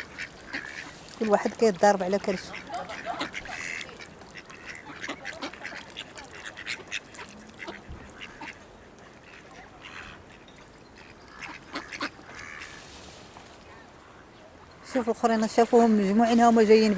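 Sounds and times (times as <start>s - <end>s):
ducks quacking: 0.0s - 12.8s.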